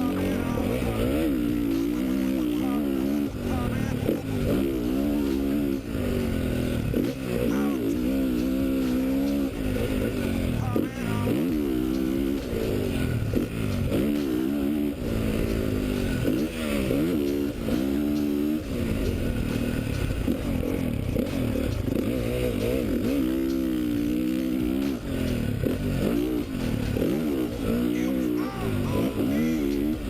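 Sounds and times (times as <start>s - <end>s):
gear changes: 0.0s - 30.0s
motorcycle engine revving: 0.0s - 30.0s.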